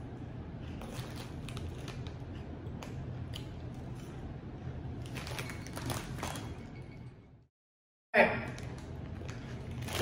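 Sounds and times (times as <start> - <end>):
steady low hum: 0.0 - 7.5
chewing crunchy snacks: 0.8 - 4.2.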